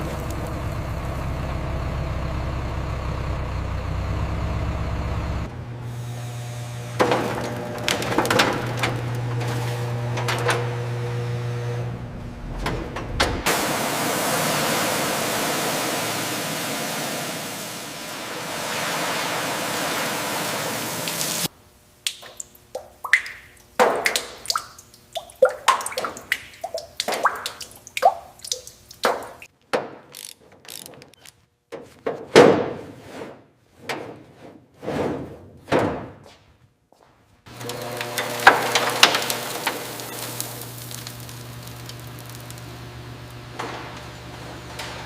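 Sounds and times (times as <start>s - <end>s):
hiss with low hum: 13.4s - 21.5s, 37.6s - 45.0s.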